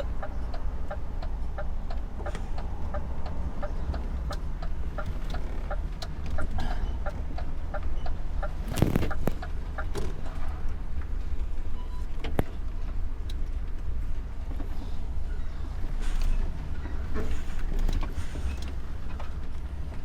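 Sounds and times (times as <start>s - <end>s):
turn-signal relay ticking: 0.0s - 8.6s
diesel engine idling: 0.0s - 20.0s.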